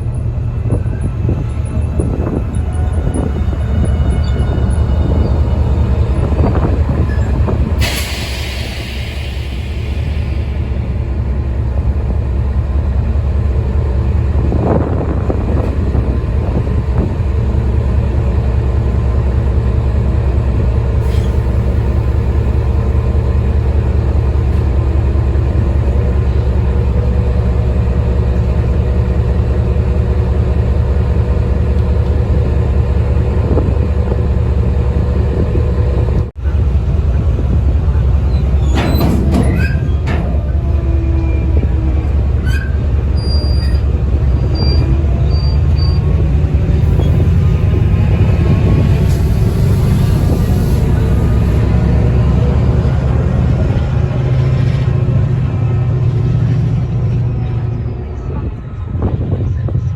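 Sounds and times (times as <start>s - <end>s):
train rumbling: 0.0s - 59.9s
wheel or brake squeals: 38.2s - 46.1s.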